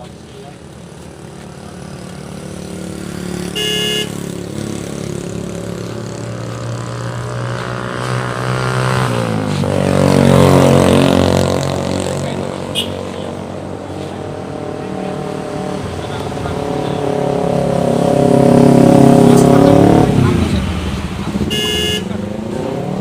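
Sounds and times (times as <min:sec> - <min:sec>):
vehicle engine passing by: 0:01.1 - 0:21.5, 0:22.1 - 0:23.0
horn beep: 0:03.5 - 0:04.3, 0:12.7 - 0:13.4, 0:21.5 - 0:22.2.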